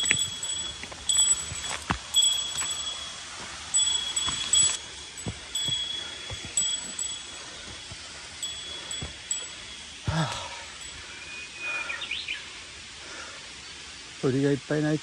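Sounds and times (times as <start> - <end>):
small metal bell ringing: 0.0 - 11.1
rustle: 0.0 - 15.0.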